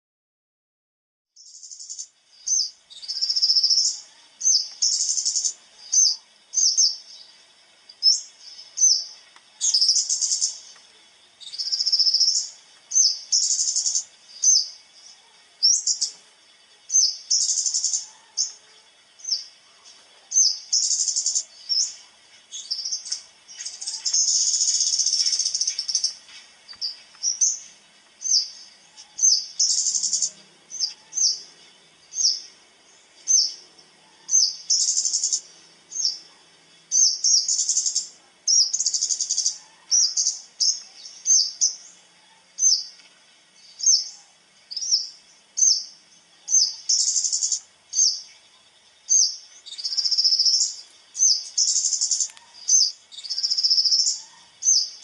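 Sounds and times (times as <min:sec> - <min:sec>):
songbird chirping and trilling: 0:01.4 - 0:55.0.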